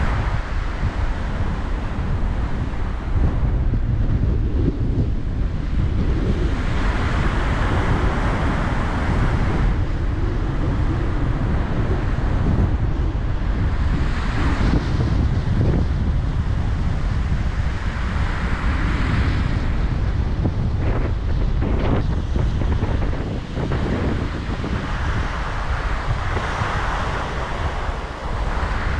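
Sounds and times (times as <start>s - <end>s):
surf washing onto beach: 0.0s - 28.9s
wind buffeting microphone: 0.0s - 28.9s.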